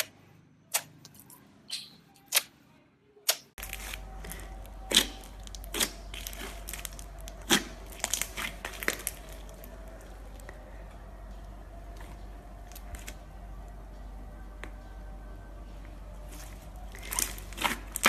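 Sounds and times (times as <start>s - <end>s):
slime squeezed popping and crackling: 3.3s - 10.4s, 16.9s - 18.0s
steady low hum: 3.6s - 18.0s.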